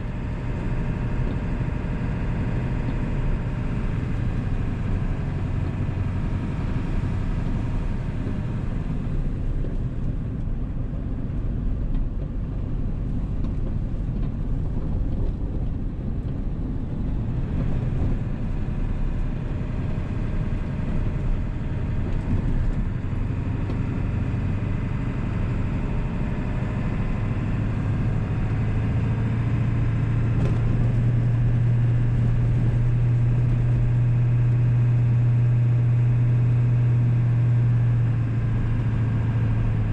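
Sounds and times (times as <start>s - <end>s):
diesel truck engine droning: 0.0s - 39.9s.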